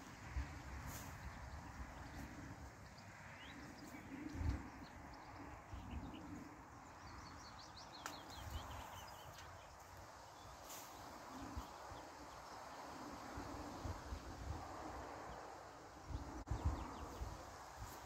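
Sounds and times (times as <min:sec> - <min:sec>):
small birds chirping: 0:00.3 - 0:13.1.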